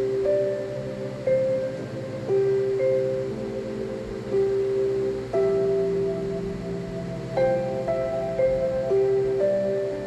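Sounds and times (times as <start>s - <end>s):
slow melody of held notes: 0.0s - 10.0s.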